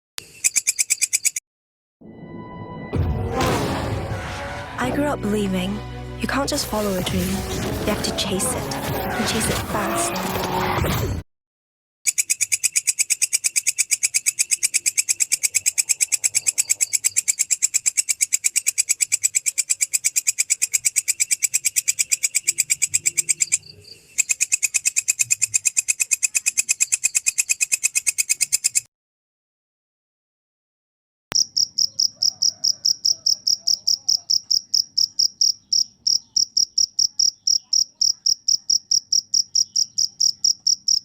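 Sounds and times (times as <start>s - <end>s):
insect chirping: 0.2s - 1.4s, 12.1s - 28.9s, 31.4s - 41.0s.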